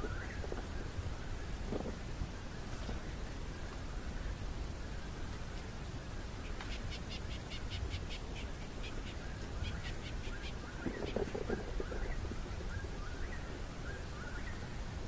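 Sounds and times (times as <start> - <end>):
birds chirping: 4.8 - 14.8.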